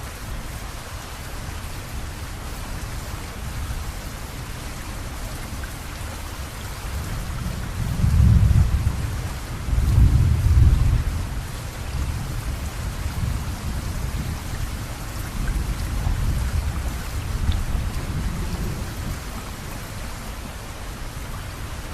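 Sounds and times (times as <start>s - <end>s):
steady rain hissing: 0.0s - 21.9s
low rumble of thunder: 6.8s - 19.8s.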